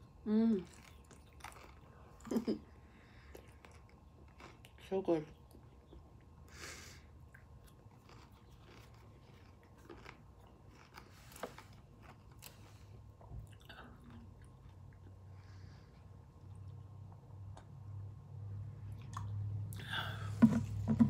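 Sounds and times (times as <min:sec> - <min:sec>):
low steady hum: 0:00.0 - 0:21.0
crunchy chewing: 0:00.7 - 0:02.5, 0:03.1 - 0:04.8, 0:07.2 - 0:15.2.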